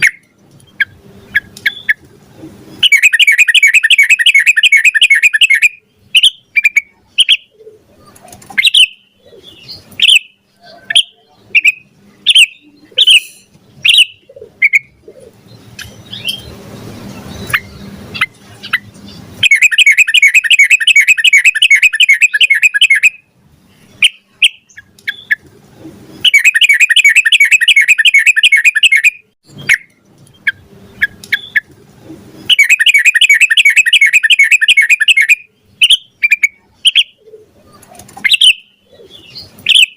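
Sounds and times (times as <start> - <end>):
bulbul chirping calls: 0.0 - 2.0, 2.8 - 7.8, 8.6 - 16.5, 17.3 - 23.3, 24.0 - 25.4, 26.2 - 31.7, 32.4 - 37.5, 38.2 - 39.9
bulbul rapid rolling trills: 24.0 - 29.8, 30.4 - 37.0.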